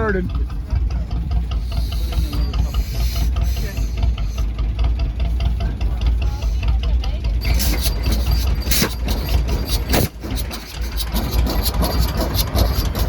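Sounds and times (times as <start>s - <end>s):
old engine running: 0.0s - 13.0s
loud hissing: 1.4s - 5.6s.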